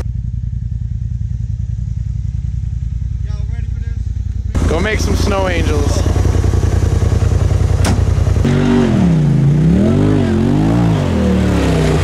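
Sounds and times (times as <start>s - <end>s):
engine revving: 3.2s - 12.0s.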